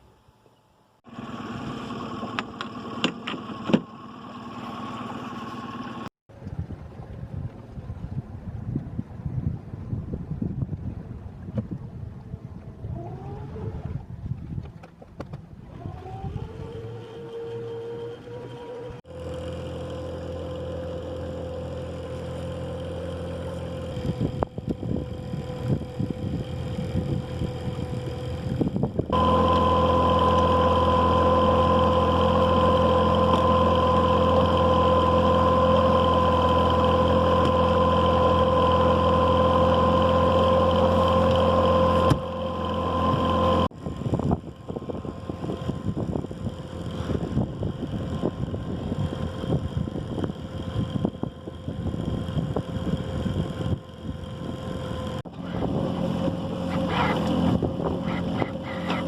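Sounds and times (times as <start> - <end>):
boat motor running: 1.0 - 59.0
water noise: 1.0 - 59.0
wind noise: 6.3 - 16.7, 24.0 - 29.2, 43.0 - 54.6.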